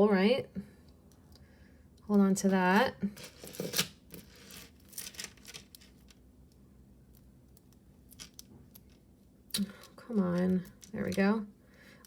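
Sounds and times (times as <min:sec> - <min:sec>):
packaging crinkling and rustling: 0:03.2 - 0:06.2.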